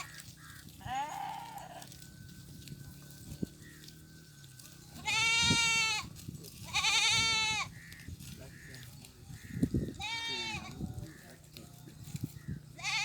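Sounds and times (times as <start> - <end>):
goat bleating: 0.0 - 2.1, 4.9 - 13.0.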